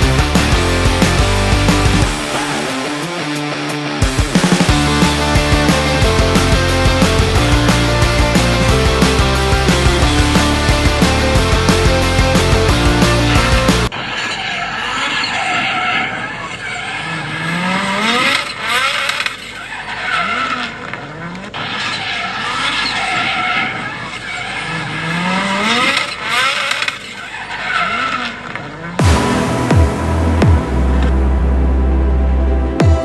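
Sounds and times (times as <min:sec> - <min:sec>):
car engine revving hard: 0:00.0 - 0:03.2, 0:04.0 - 0:13.9, 0:29.0 - 0:33.0
rock music: 0:00.0 - 0:13.9, 0:29.0 - 0:33.0.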